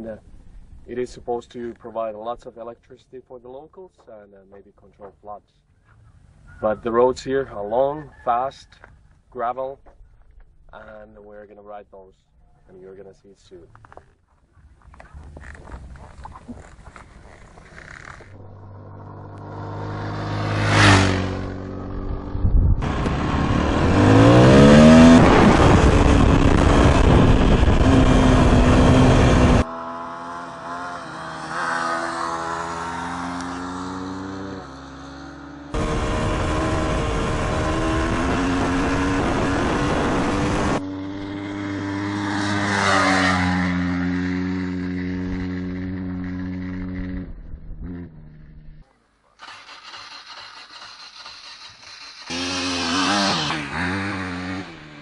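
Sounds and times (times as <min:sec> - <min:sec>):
wind and road rumble: 0:00.0 - 0:02.6, 0:04.5 - 0:55.0
dirt bike engines revving: 0:14.9 - 0:48.8, 0:49.4 - 0:55.0.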